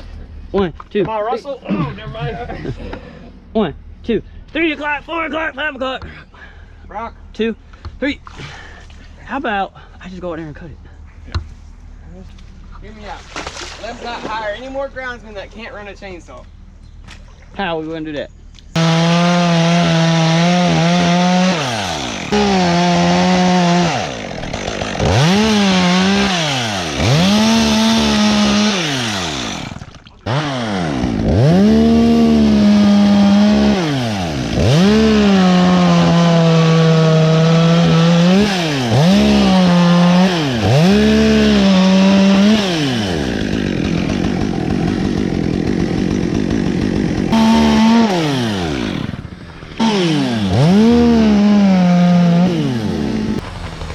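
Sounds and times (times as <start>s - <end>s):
chainsaw revving: 18.8s - 53.9s.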